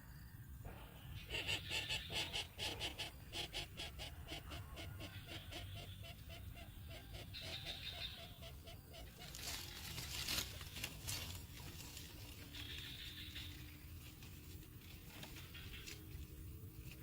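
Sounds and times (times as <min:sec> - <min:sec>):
bird chick calling rapidly: 0:01.2 - 0:09.5.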